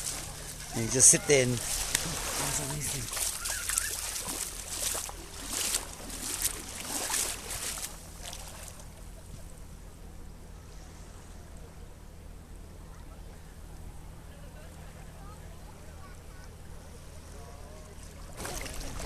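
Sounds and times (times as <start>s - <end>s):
small waves breaking: 0.0s - 9.2s, 17.7s - 19.0s
steady low hum: 0.0s - 19.0s.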